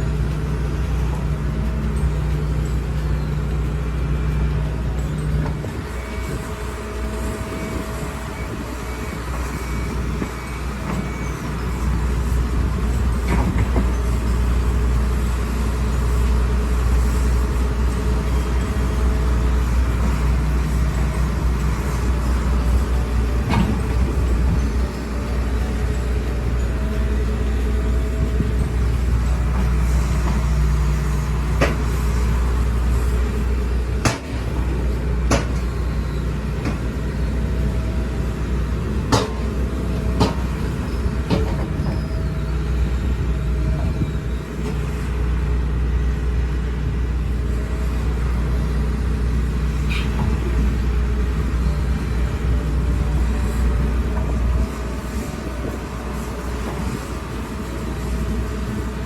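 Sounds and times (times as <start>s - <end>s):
excavator diesel engine running: 0.0s - 59.0s
sharp metallic clanks: 17.9s - 37.2s.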